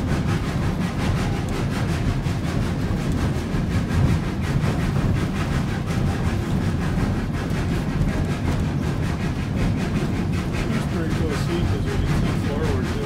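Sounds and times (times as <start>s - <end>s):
steam train running rumble: 0.0s - 13.0s.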